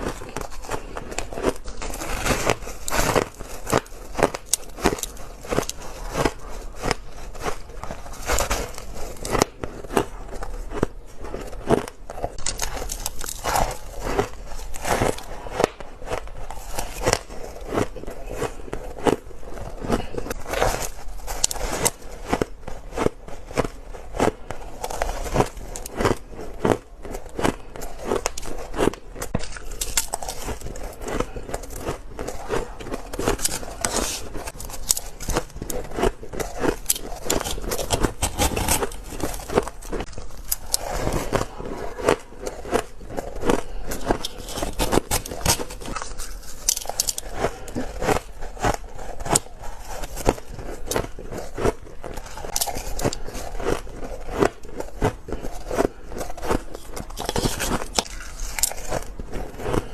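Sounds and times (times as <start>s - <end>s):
person chewing shaved ice: 0.0s - 59.9s.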